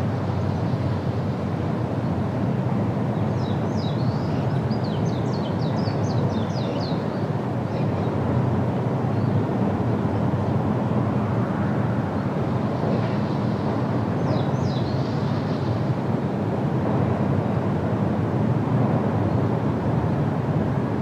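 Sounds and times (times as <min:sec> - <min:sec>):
low rushing noise: 0:00.0 - 0:21.0
birds chirping: 0:03.4 - 0:08.2.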